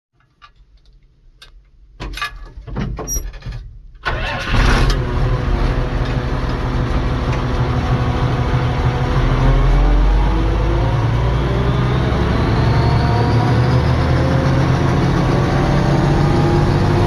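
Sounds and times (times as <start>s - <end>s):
diesel engine idling: 4.1s - 17.0s.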